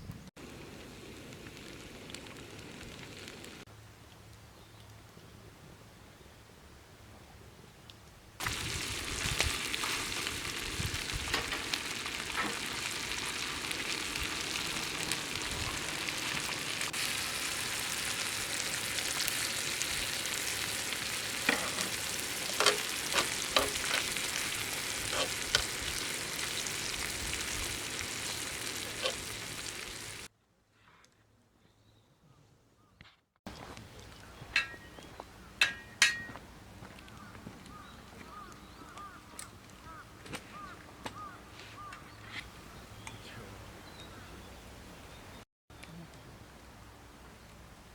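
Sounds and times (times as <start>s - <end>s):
food sizzling in hot oil: 0.4s - 3.6s, 8.4s - 30.3s.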